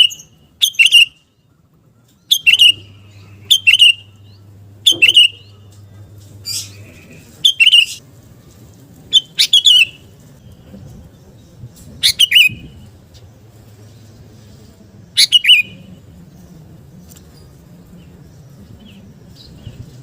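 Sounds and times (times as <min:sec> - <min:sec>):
bird singing whistled phrases: 0:00.0 - 0:01.3, 0:02.3 - 0:05.6, 0:06.5 - 0:08.0, 0:09.1 - 0:10.6, 0:12.0 - 0:12.8, 0:15.2 - 0:15.9.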